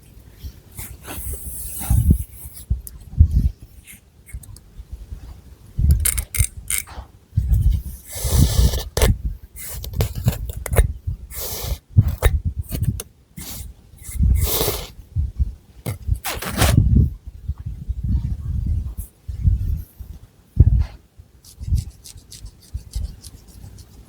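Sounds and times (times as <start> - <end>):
fingernails scratching hair and scalp: 21.4 - 24.0.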